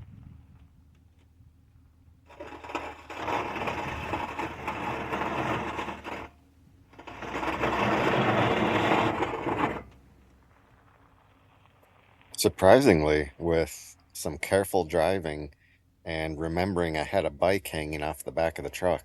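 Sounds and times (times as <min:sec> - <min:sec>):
bike carrier scraping ground: 0:02.3 - 0:06.4, 0:07.0 - 0:10.2.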